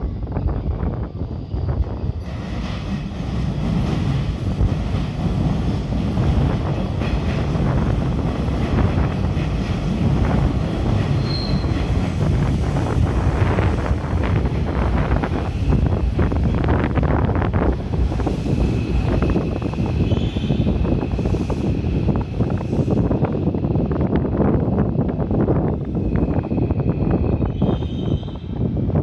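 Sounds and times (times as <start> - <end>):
train motors and wheels rumbling: 0.0 - 29.0
high squeal: 11.2 - 11.9, 18.7 - 21.4, 26.0 - 28.6.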